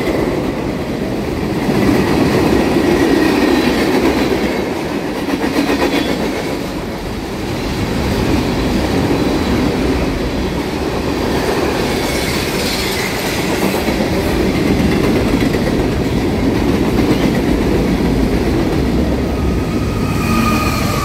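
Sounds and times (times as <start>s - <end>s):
freight cars rumbling on rails: 0.0s - 21.0s
diesel locomotive whine: 6.0s - 21.0s.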